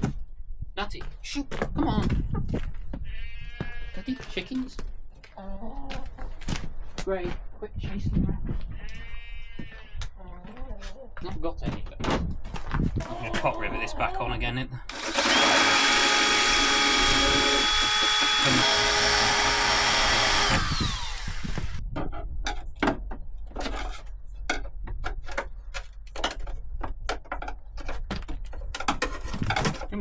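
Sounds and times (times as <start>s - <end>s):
power drill running: 14.9s - 21.8s.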